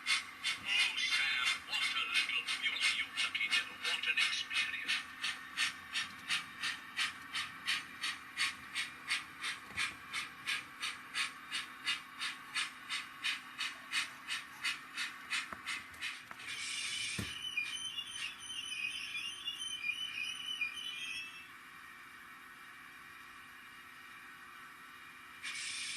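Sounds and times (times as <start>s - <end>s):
steam locomotive chuffs: 0.0s - 21.1s, 25.1s - 25.9s
warbling whistle: 16.5s - 21.5s.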